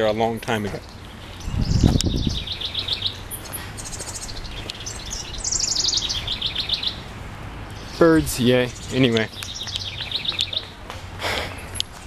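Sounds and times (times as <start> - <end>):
songbirds singing: 0.0 - 12.0
rapid high bird trill: 1.1 - 7.1.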